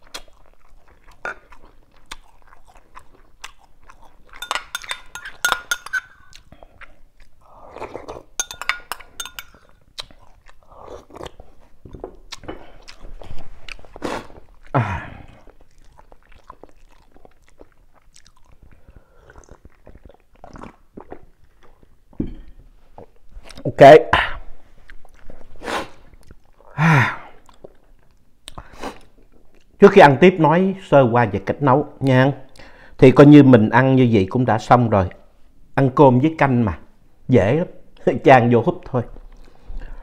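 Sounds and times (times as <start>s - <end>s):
close-miked chewing: 0.0s - 22.2s, 24.8s - 26.7s, 27.4s - 29.8s
metal spoon clinking ceramic bowl: 4.3s - 6.2s, 8.4s - 9.7s.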